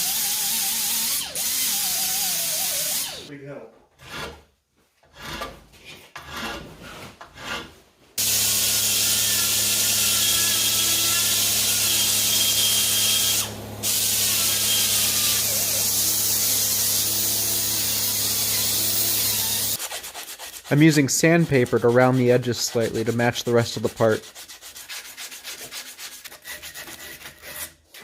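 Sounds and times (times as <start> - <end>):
electric grinder grinding metal: 0.0 - 3.3, 8.2 - 19.8.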